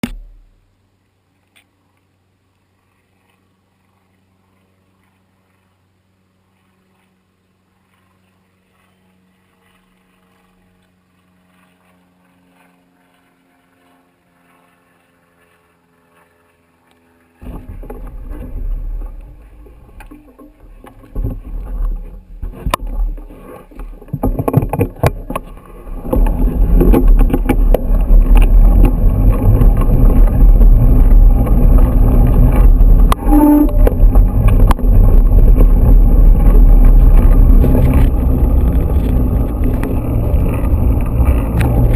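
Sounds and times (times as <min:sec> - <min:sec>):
bike rattling over ground: 0:17.3 - 0:41.9
wind buffeting microphone: 0:17.4 - 0:41.9.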